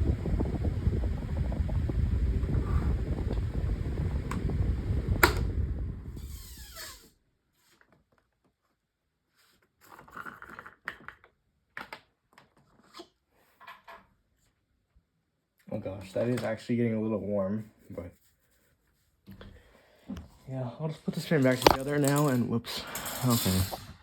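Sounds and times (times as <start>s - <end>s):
table fan motor whine: 0.0s - 7.1s
fan switch click: 4.2s - 6.0s
clicks and rubbing from handling: 21.2s - 22.5s.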